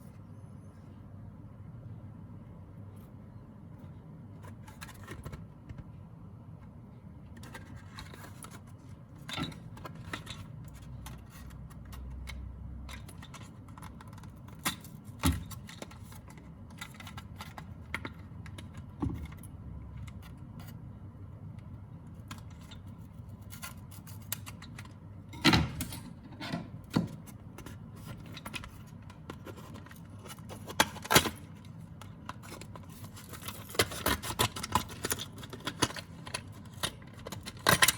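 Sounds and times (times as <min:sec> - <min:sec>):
plastic and card packaging clicks: 0:27.0 - 0:37.9.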